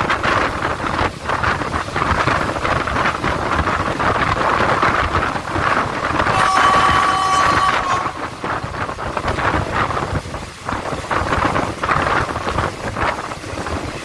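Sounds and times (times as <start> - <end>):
train running rumble: 0.0 - 14.0
wind buffeting the microphone: 0.0 - 14.0
two-tone train horn blast: 6.2 - 9.6.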